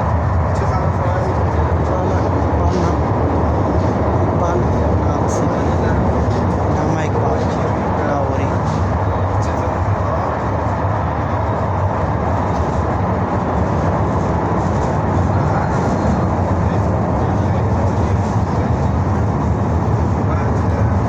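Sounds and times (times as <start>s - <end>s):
metro train rumbling: 0.0s - 21.0s.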